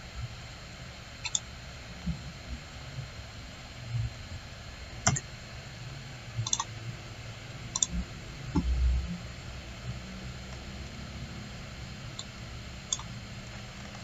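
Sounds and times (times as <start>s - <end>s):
computer mouse clicking: 1.2s - 1.4s, 5.0s - 5.2s, 6.4s - 6.7s, 7.8s - 8.0s, 12.9s - 13.1s.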